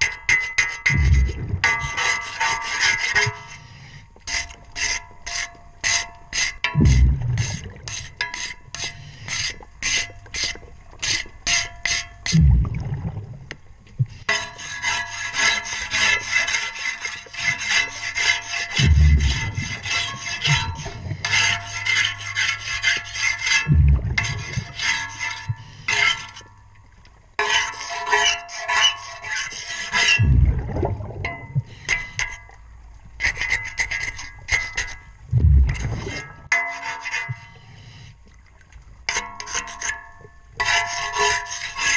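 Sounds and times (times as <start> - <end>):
tool scraping metal underwater: 0.0 - 13.2, 14.0 - 38.2, 39.0 - 41.9
underwater bubbles rushing: 0.9 - 1.8, 6.8 - 8.1, 12.3 - 14.2, 18.8 - 21.2, 23.7 - 24.8, 30.2 - 31.8, 35.2 - 36.5.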